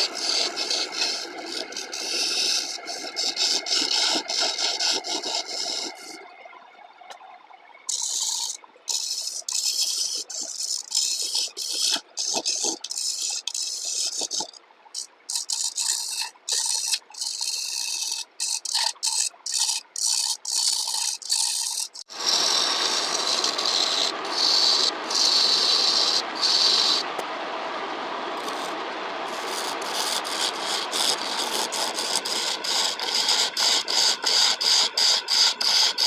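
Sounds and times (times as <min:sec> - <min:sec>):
lathe tool cutting wood: 0:00.0 - 0:05.8, 0:19.6 - 0:27.2, 0:29.4 - 0:36.0.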